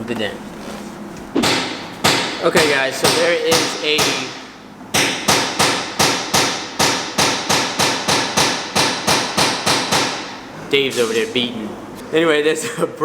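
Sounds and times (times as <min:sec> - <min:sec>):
hammer striking with ring: 0:01.4 - 0:10.4.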